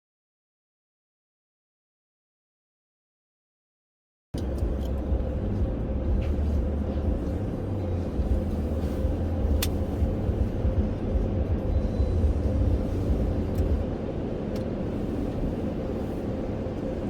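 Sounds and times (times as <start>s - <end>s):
car rumble from inside: 4.4s - 17.0s.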